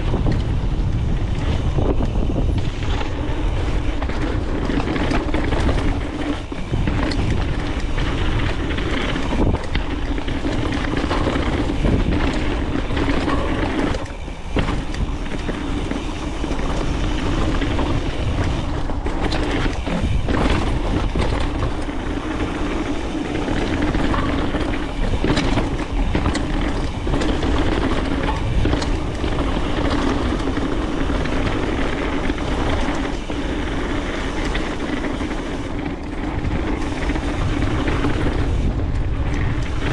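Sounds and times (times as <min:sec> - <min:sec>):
bike rattling over bumps: 0:00.0 - 0:39.9
tyres rolling over gravel: 0:00.0 - 0:39.9
wind on microphone: 0:00.0 - 0:39.9.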